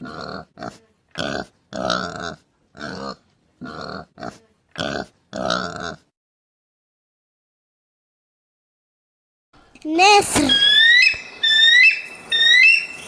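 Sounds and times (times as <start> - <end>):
pig grunting: 0.0 - 6.1.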